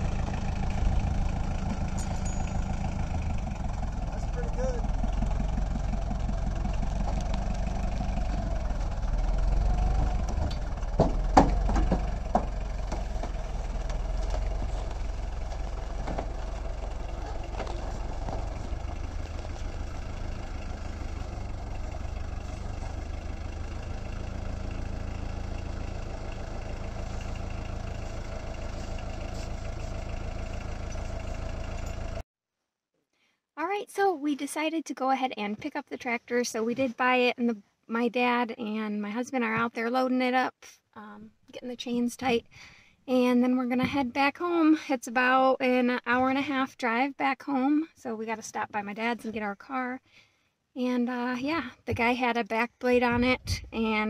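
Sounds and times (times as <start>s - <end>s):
tractor engine idling: 0.0s - 32.2s
sharp knocks: 10.2s - 14.0s.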